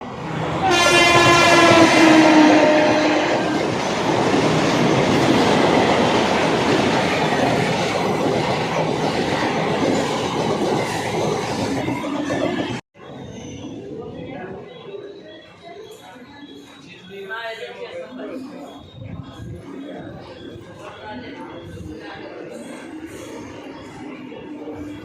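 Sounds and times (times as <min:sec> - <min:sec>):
train rumbling on rails: 0:00.0 - 0:16.8
train horn: 0:00.6 - 0:03.8.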